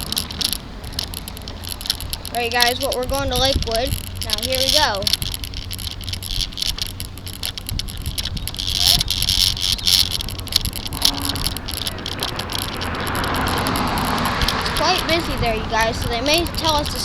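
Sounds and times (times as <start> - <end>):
bicycle rattling on road: 0.0 - 17.0
wind noise on microphone: 0.0 - 17.0.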